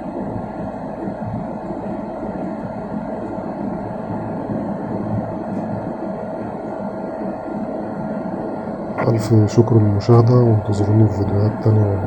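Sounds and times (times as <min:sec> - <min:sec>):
jet engine and airflow rumble: 0:00.0 - 0:12.0
thin steady tone: 0:09.0 - 0:12.0.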